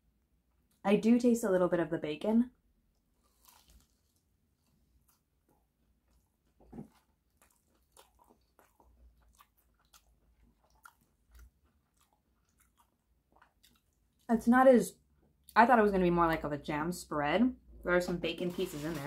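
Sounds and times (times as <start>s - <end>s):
faint chewing mouth clicks: 3.0s - 14.3s.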